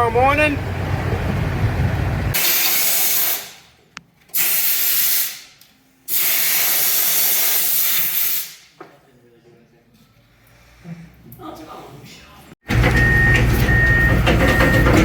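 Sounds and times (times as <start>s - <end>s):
low engine rumble: 0.0s - 2.4s
loud bursts of hissing: 2.4s - 3.7s, 4.4s - 8.7s.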